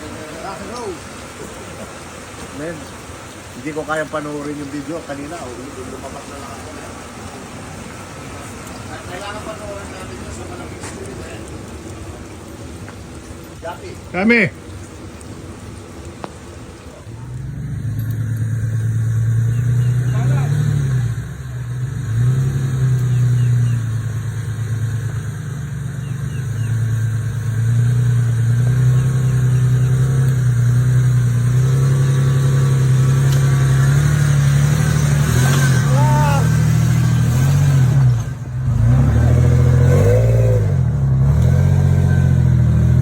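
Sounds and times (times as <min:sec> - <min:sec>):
faint voices: 0:00.0 - 0:17.5, 0:35.2 - 0:37.0
vehicle engine revving: 0:14.1 - 0:43.0.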